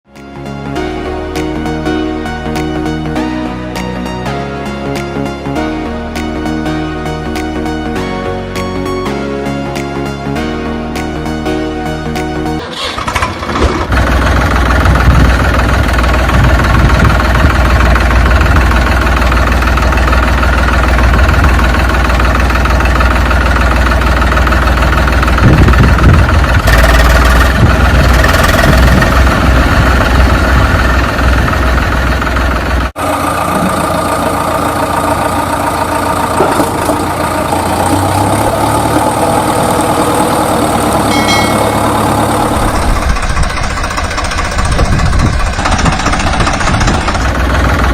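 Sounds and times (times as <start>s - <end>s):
different engine sound: 0.8s - 47.9s
vehicle engine rumbling: 10.4s - 47.9s.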